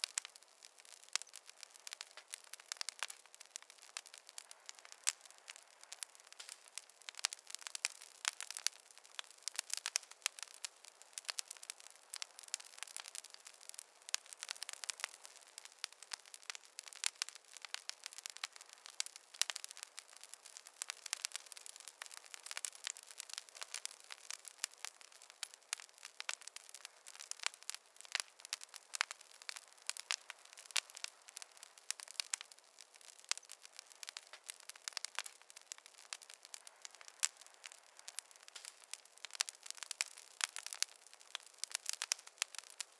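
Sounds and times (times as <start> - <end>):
campfire crackling: 0.0 - 42.9.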